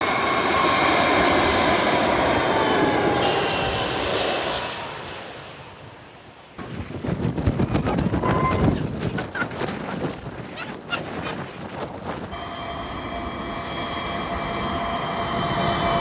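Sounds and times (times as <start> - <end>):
jet airliner passing overhead: 0.0 - 16.0
wind buffeting microphone: 6.6 - 12.4.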